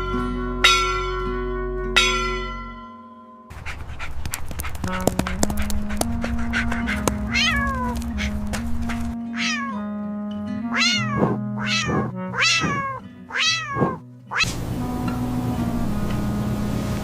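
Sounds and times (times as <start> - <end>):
background music: 4.8 - 17.0
cat meowing: 6.2 - 9.8, 10.7 - 14.5.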